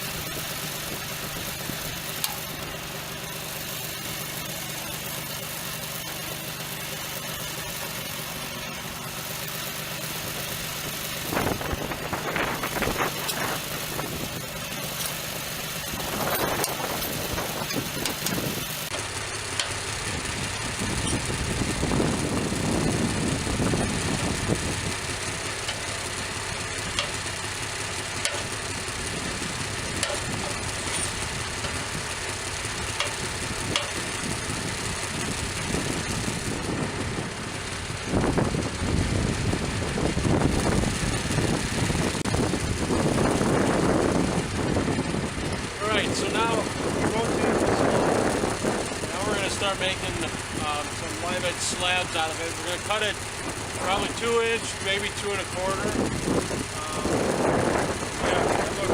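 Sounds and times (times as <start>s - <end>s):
sawmill engine running: 0.0s - 58.9s
knocks and clatters: 28.2s - 28.6s, 30.0s - 31.9s, 32.9s - 34.1s.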